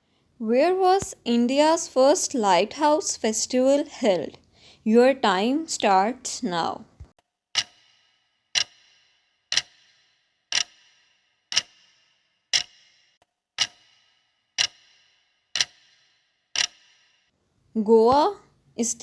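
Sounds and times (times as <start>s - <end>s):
clock ticking: 1.0s - 11.9s, 12.5s - 13.0s, 13.6s - 17.0s.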